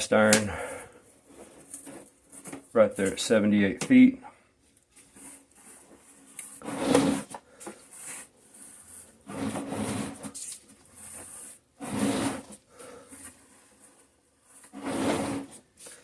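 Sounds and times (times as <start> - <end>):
man breathing heavily: 0.4 - 1.2, 12.6 - 13.5.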